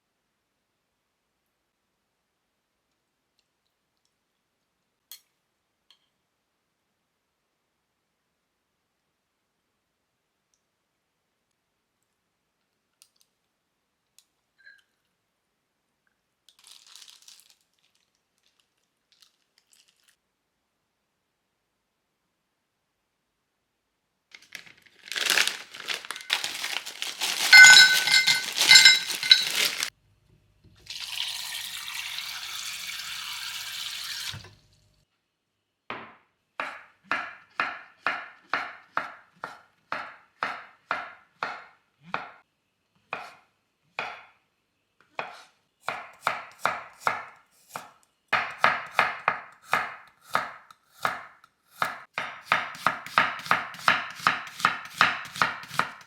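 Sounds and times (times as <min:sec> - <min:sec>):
kitchenware clattering: 0:25.0 - 0:29.9
knife chopping on cutting board: 0:45.2 - 0:56.0.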